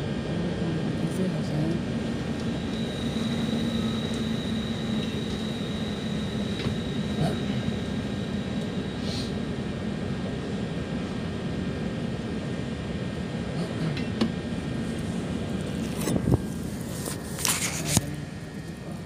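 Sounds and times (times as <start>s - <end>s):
train rumbling: 0.0s - 11.4s
thin high whine: 2.3s - 9.5s.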